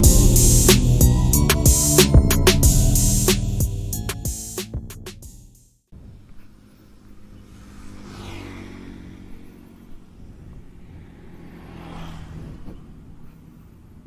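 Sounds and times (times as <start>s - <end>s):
motorcycle engine idling: 0.0s - 4.1s.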